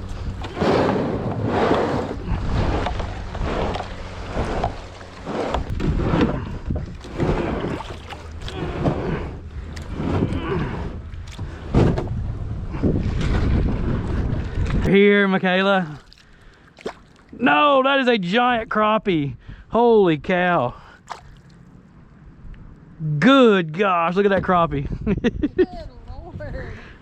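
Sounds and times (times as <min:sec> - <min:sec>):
water sloshing around kayak: 0:00.0 - 0:14.9, 0:15.5 - 0:17.5, 0:20.8 - 0:21.8
wind rumbling on microphone: 0:00.0 - 0:14.9, 0:24.1 - 0:27.0.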